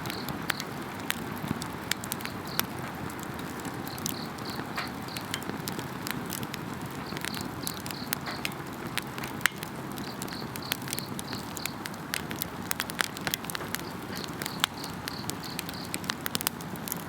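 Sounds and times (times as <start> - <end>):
campfire crackling and popping: 0.0 - 17.0
insects chirping: 3.9 - 5.3, 7.0 - 8.5, 10.0 - 11.9, 13.7 - 16.0.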